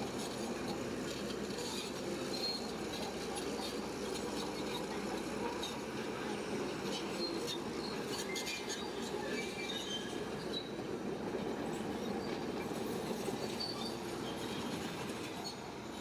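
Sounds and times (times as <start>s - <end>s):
steel tracks squealing and clanking: 0.1s - 16.0s.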